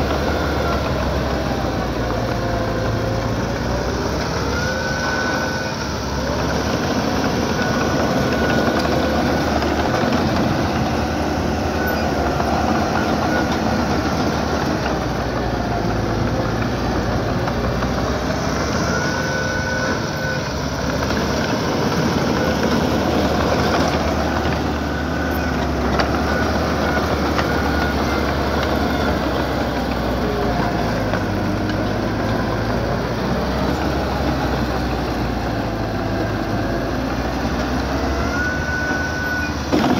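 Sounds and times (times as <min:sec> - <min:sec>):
bulldozer diesel engine under load: 0:00.0 - 0:39.9
short high squeals: 0:37.9 - 0:39.8.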